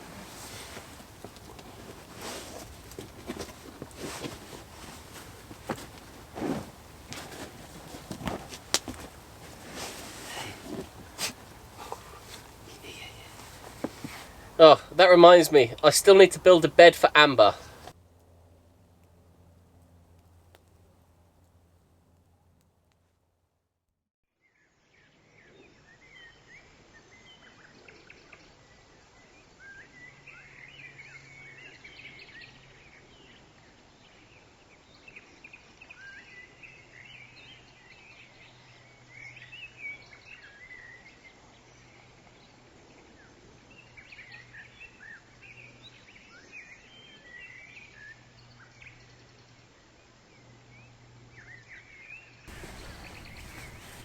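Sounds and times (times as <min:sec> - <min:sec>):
faint low hum: 0:00.0 - 0:23.0, 0:52.5 - 0:54.0
small birds chirping and singing: 0:52.5 - 0:54.0.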